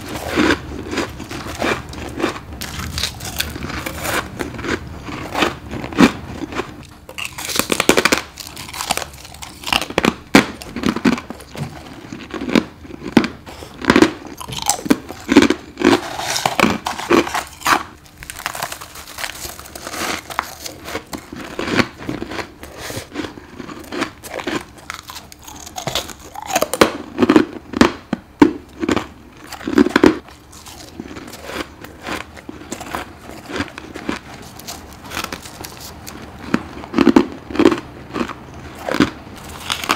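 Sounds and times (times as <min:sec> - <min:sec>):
chewing: 0:00.0 - 0:27.4, 0:28.8 - 0:39.9
crunching bites of ice: 0:00.1 - 0:28.0.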